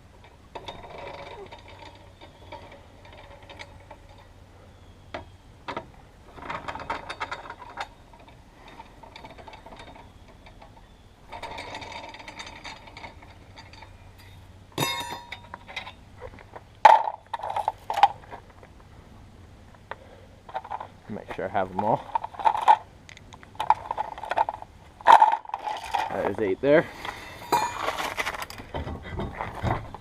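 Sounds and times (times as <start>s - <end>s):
metal clanks: 0.1s - 4.4s, 5.1s - 18.4s, 23.5s - 30.0s.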